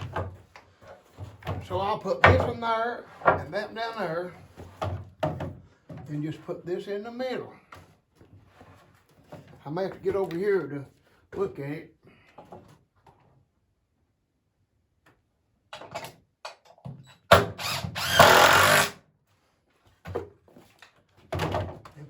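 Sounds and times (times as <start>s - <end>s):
power drill driving a screw: 17.3s - 19.0s.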